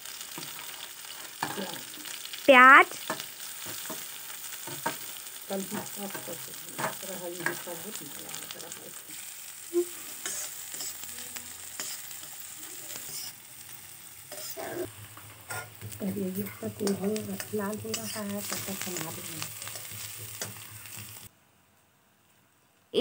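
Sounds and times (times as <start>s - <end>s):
onions sizzling in hot oil: 0.0s - 21.3s
metal spatula scraping a pan: 9.1s - 13.4s, 14.3s - 21.3s.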